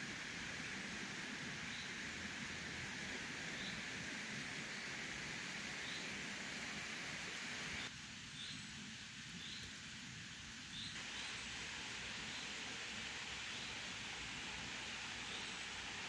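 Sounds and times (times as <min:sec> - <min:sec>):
outdoor ambient hiss: 0:00.0 - 0:16.0.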